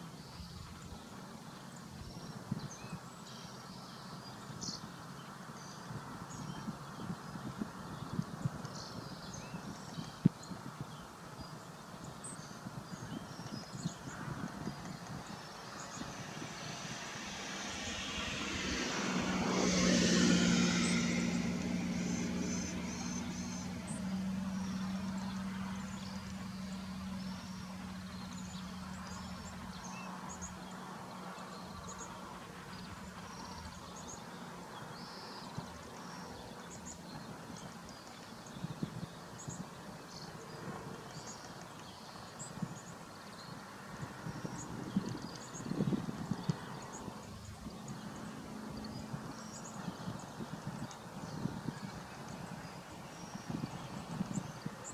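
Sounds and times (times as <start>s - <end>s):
motor vehicle passing: 13.8s - 29.8s, 44.4s - 54.9s.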